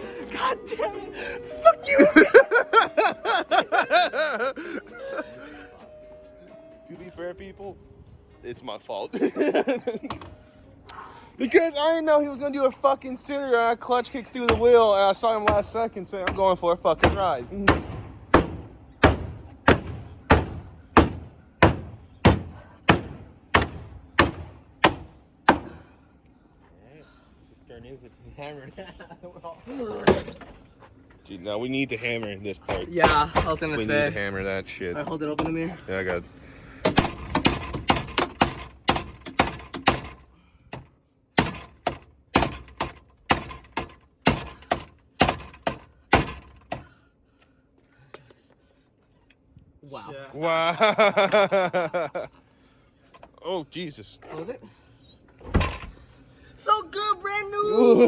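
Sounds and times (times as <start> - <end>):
hammer striking metal panel: 14.4 - 25.8, 36.8 - 40.2, 41.4 - 46.8.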